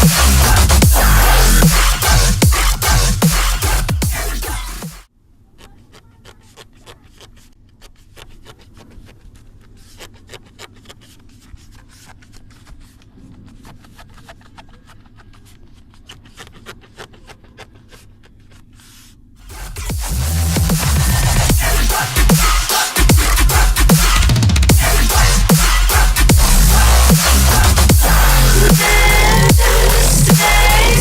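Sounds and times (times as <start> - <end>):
music: 0.0 - 5.1, 19.4 - 31.0.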